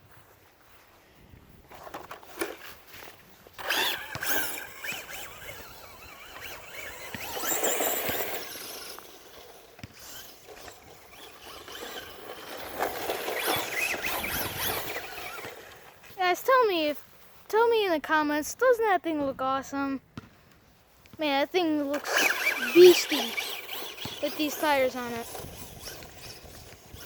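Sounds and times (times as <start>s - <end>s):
rc truck motor rushing: 1.7s - 16.9s, 21.2s - 27.0s.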